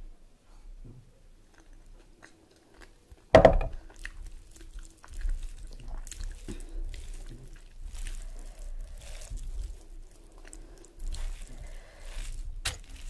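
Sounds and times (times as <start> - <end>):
chewing and wet mouth sounds: 1.4 - 13.0
loud knock: 3.4 - 3.8.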